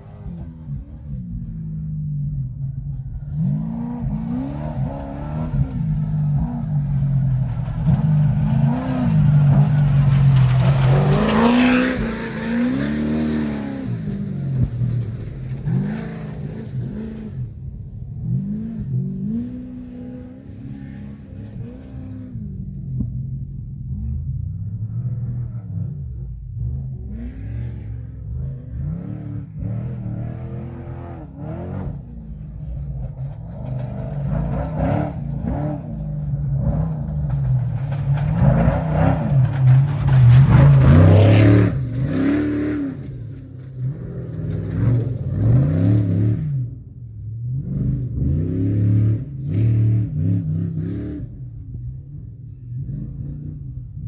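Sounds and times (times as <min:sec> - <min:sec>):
truck engine revving: 0:00.0 - 0:54.0
tyres on gravel: 0:03.0 - 0:22.0, 0:30.2 - 0:46.1.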